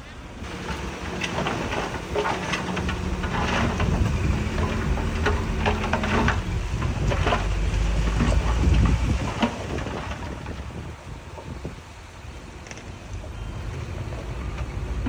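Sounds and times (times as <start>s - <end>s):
diesel machinery running: 0.0s - 15.0s
loose stone clattering: 0.4s - 10.6s.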